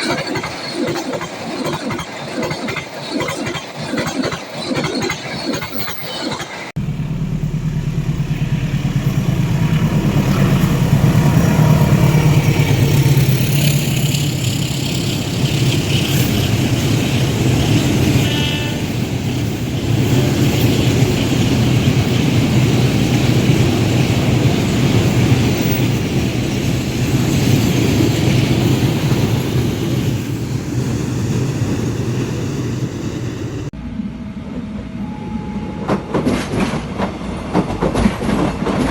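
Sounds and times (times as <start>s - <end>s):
train passing close by: 0.0s - 38.9s
brief higher tone: 34.8s - 36.3s.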